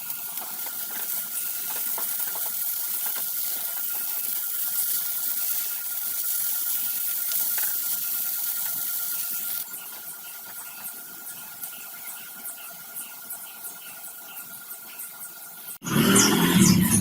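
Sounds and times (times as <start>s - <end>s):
food sizzling in a pan: 0.0s - 9.7s
frying crackles: 0.0s - 12.9s.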